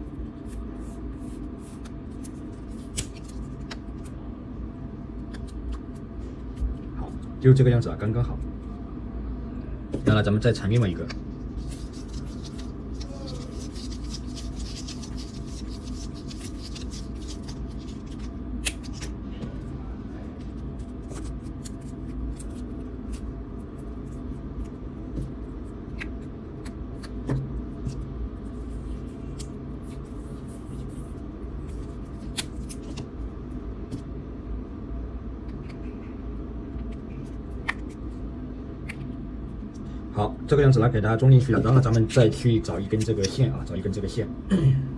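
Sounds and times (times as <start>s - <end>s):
steady low hum: 0.0s - 44.9s
tape rustling: 11.4s - 19.2s.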